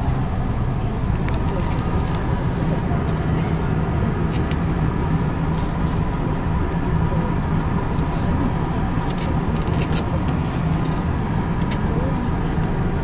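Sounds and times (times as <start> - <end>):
train equipment hum: 0.0 - 13.0.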